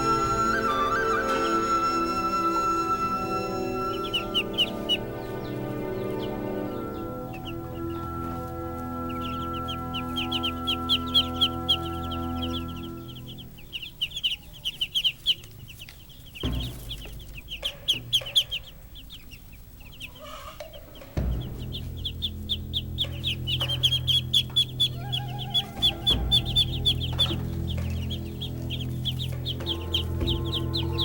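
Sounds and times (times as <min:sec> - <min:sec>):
birds chirping: 0:00.0 - 0:31.0
low steady hum: 0:00.0 - 0:31.0.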